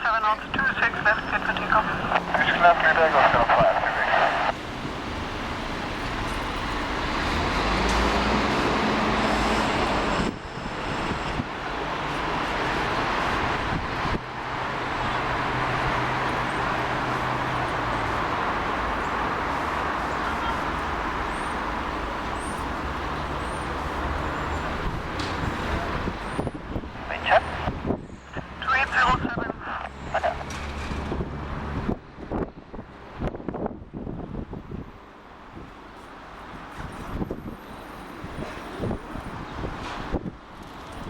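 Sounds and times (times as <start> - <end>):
jet engine roar: 0.0 - 4.6.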